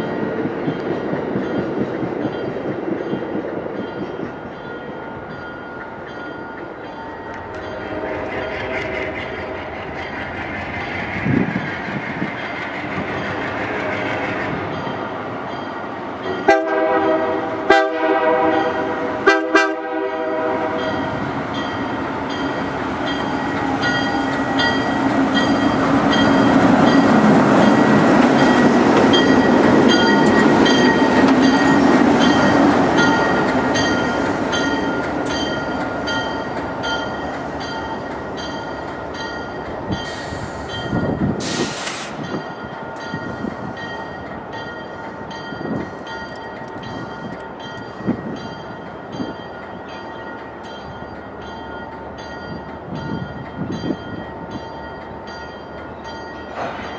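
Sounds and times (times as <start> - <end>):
train rumbling past: 0.0 - 56.9
train air horn blasts: 16.4 - 21.0, 41.4 - 42.2
wheels clicking over rail joints: 21.1 - 40.1.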